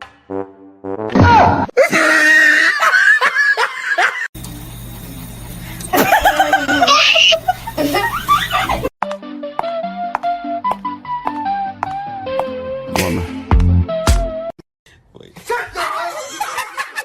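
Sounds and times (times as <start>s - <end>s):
music: 0.0s - 1.1s, 9.0s - 14.5s
people laughing: 1.8s - 4.3s, 5.9s - 8.9s, 16.0s - 17.0s.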